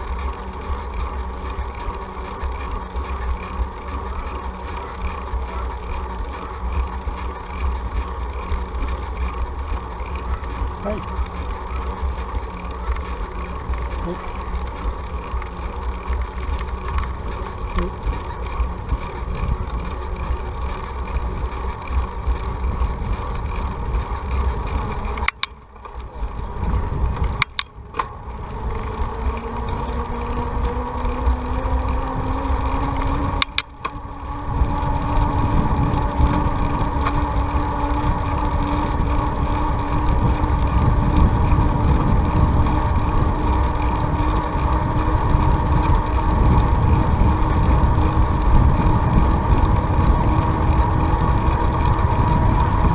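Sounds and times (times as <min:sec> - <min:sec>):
steady hum rising in pitch: 0:00.0 - 0:52.9
wind rushing over microphone: 0:28.4 - 0:52.9.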